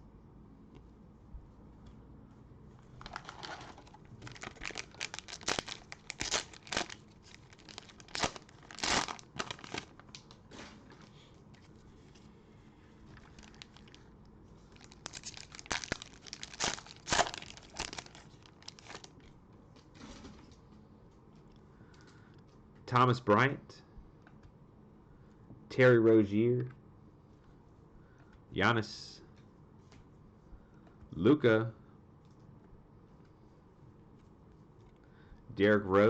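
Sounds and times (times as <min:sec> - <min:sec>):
plastic wrapper crinkling and tearing: 0:03.0 - 0:10.4, 0:13.1 - 0:14.0, 0:14.7 - 0:19.3.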